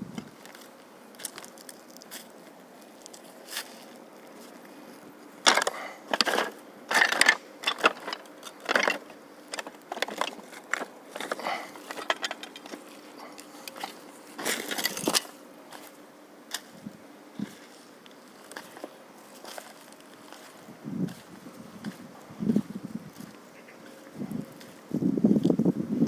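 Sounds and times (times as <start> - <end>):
footsteps crunching on dry debris: 0.0 - 25.8.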